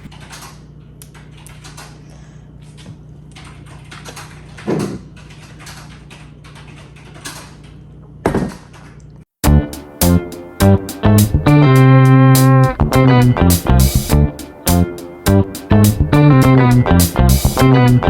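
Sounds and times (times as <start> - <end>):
loud thuds: 8.2 - 8.8.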